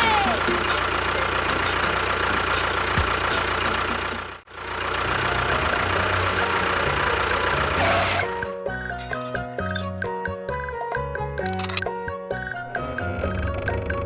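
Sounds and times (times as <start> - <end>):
engine running: 0.0 - 10.1.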